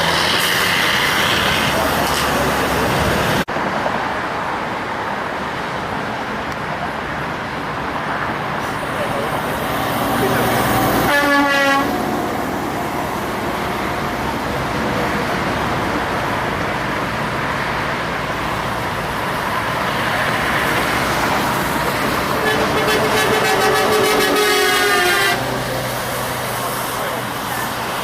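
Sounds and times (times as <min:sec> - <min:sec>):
heavy traffic passing: 0:00.0 - 0:28.0
truck air horn: 0:10.9 - 0:12.0, 0:22.3 - 0:25.6.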